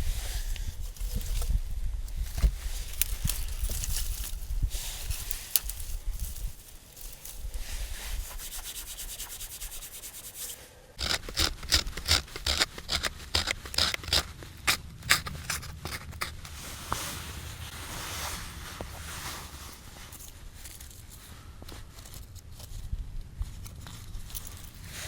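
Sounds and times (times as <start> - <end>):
rough rubbing and scraping: 2.3 - 22.8.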